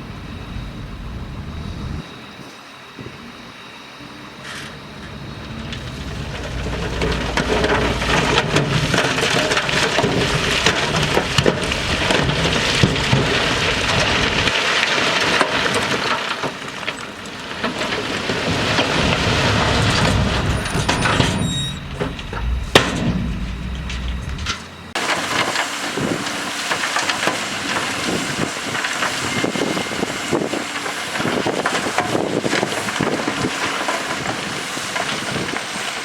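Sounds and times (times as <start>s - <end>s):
low diesel engine rumble: 0.0s - 2.0s, 3.0s - 14.5s, 16.9s - 33.6s
tumbling stones clattering: 5.5s - 25.8s.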